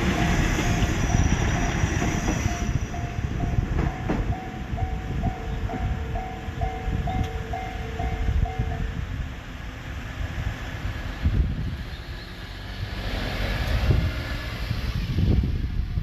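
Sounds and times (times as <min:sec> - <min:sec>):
crossing electronic warning alarm: 0:00.0 - 0:09.0
diesel railcar rumble: 0:00.0 - 0:16.0.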